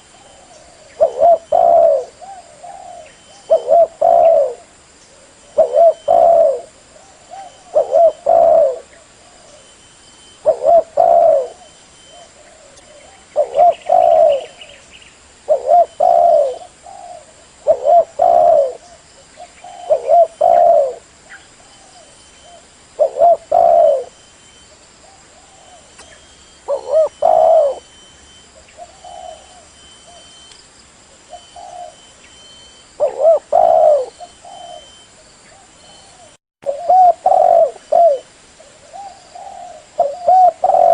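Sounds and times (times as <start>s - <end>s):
dove cooing: 0.0s - 9.8s, 10.4s - 14.8s, 15.4s - 24.2s, 25.0s - 28.0s, 28.6s - 30.4s, 31.2s - 32.1s, 33.0s - 40.9s.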